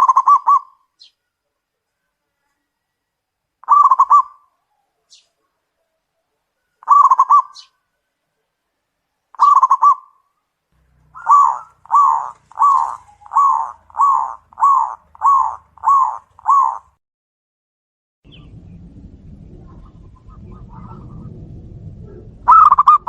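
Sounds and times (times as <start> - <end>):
dove cooing: 0.0 - 0.8, 3.6 - 5.1, 6.6 - 7.7, 9.4 - 10.1, 11.1 - 16.9, 22.1 - 23.0.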